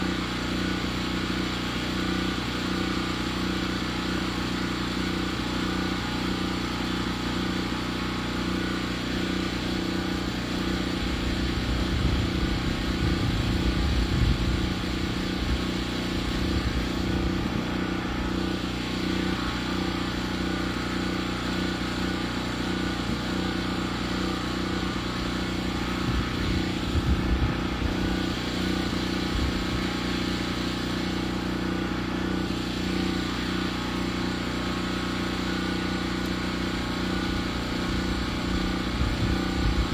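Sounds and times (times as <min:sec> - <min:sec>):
sawmill engine running: 0:00.0 - 0:39.9
low rumbling: 0:11.1 - 0:18.3, 0:24.9 - 0:30.0.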